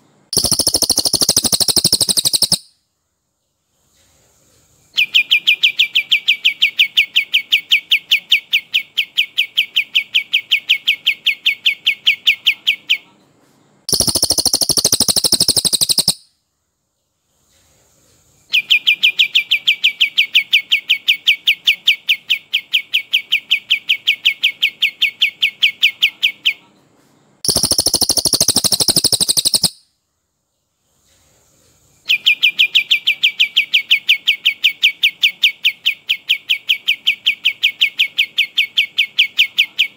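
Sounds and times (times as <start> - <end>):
higher dense bird burst: 0.3 - 2.6
songbird rolling trill: 0.4 - 2.6, 13.9 - 16.2, 27.4 - 29.8.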